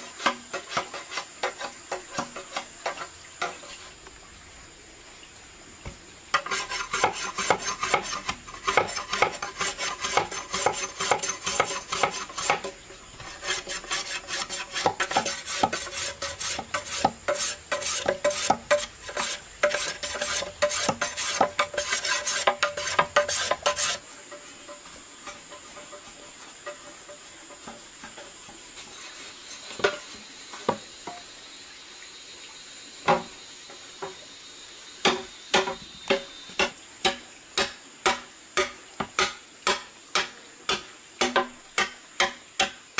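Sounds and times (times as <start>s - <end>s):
utensil scraping a cooking pan: 0.0s - 4.1s, 6.3s - 30.9s.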